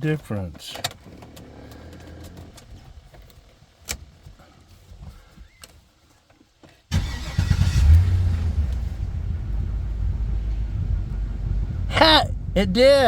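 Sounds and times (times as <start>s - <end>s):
truck engine starting and idling: 6.9s - 13.0s.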